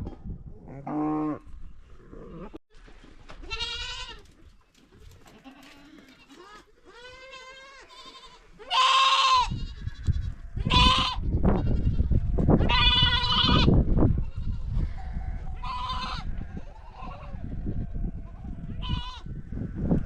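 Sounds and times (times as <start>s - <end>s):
goats bleating: 3.5s - 4.3s, 5.2s - 19.3s.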